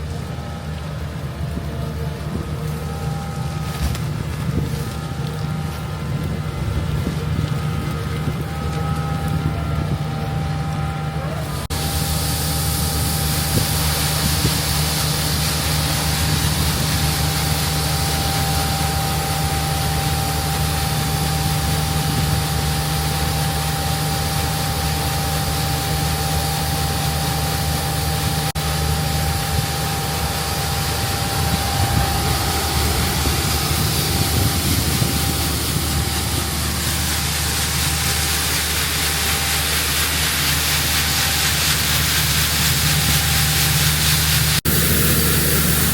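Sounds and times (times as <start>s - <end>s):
combine harvester engine drone: 0.0s - 45.9s
steady machine whine: 0.0s - 45.9s
dense hiss: 25.6s - 45.9s.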